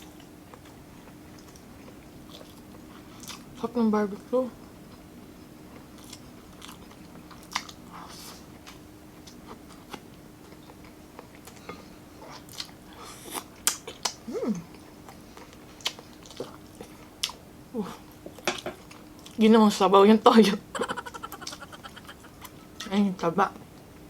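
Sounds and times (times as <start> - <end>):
faint steady hum: 0.0 - 24.0
close-up chewing: 0.1 - 3.6, 4.6 - 17.4.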